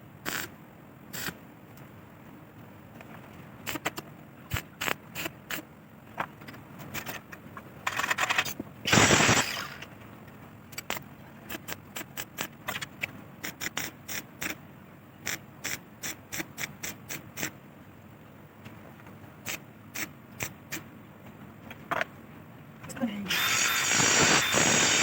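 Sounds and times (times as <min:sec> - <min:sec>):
short loud burst of noise: 0:08.9 - 0:09.9.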